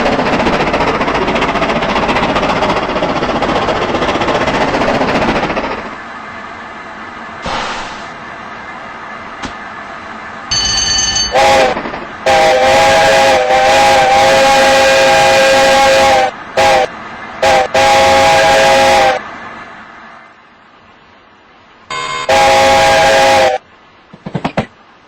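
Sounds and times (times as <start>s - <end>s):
hiss of steam: 7.4s - 8.3s
steam locomotive whistle: 10.6s - 19.3s, 21.9s - 23.6s.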